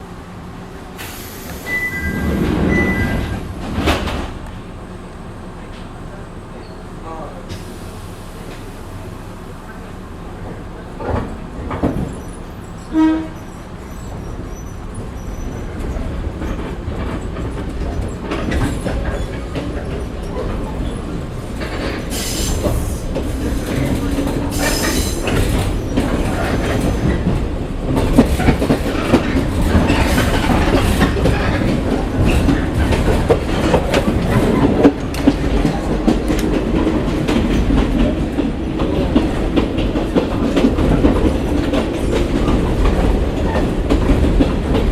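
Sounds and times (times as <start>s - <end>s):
brief pitched tone: 1.7s - 3.4s
wheels clicking over rail joints: 8.4s - 44.9s.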